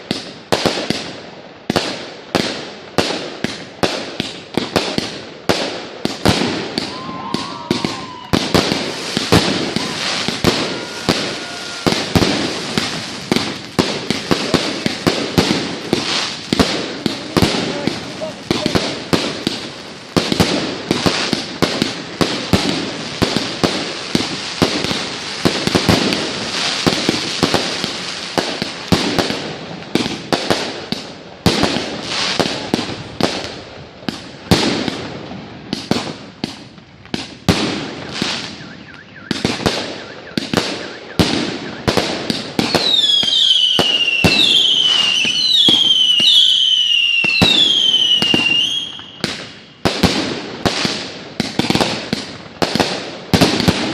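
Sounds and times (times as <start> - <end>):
fireworks bangs and crackling: 0.0 - 53.9
whistling fireworks: 0.0 - 53.9
firework pops: 2.4 - 27.6.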